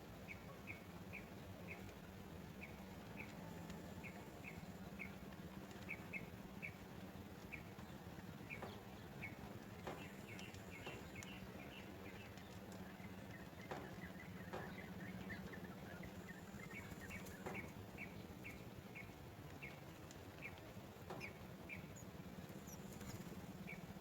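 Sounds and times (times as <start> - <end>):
faint low hum: 0.0 - 24.0
small bird chirping: 10.0 - 19.8, 21.2 - 24.0.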